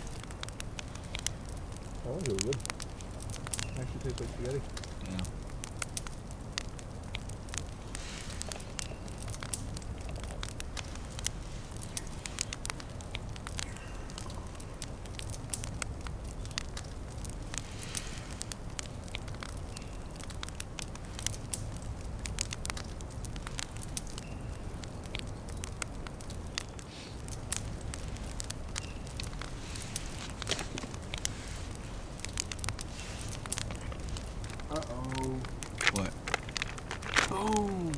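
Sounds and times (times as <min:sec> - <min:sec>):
campfire crackling and popping: 0:00.0 - 0:37.9
steady low rumble: 0:27.2 - 0:37.9.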